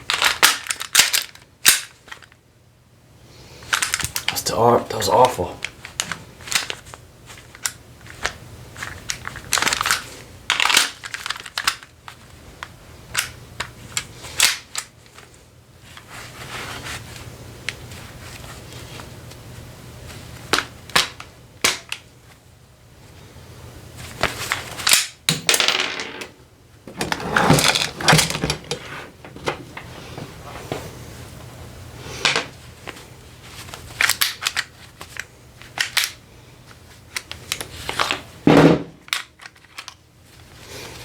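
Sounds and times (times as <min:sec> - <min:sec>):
toy gun clicks and rattles: 0:00.1 - 0:02.0, 0:03.7 - 0:04.5, 0:07.5 - 0:11.9, 0:34.0 - 0:34.7.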